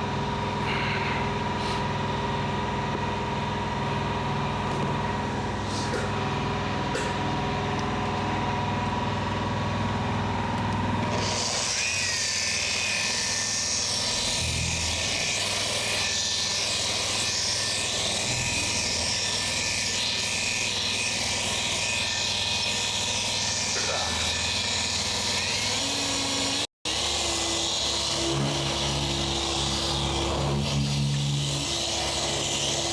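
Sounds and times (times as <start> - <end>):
polisher running: 15.6 - 32.9.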